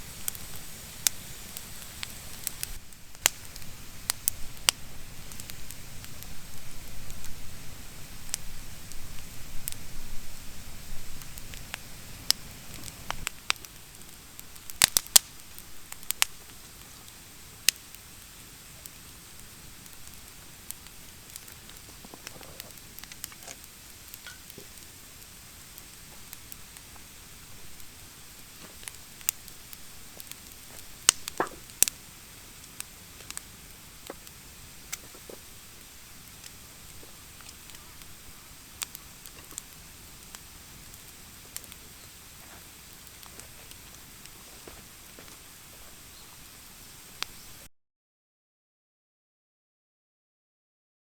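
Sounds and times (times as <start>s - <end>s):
wood fire crackling: 0.0s - 47.7s
sharp pops: 30.2s - 32.0s.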